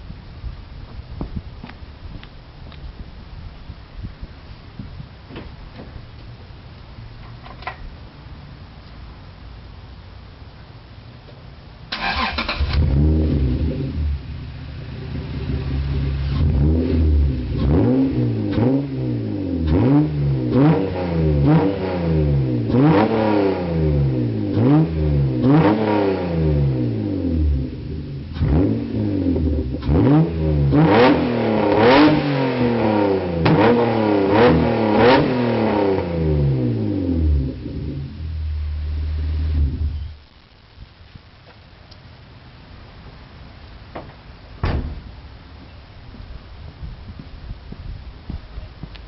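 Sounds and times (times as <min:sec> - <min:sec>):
car engine revving in blips: 0:11.9 - 0:40.4.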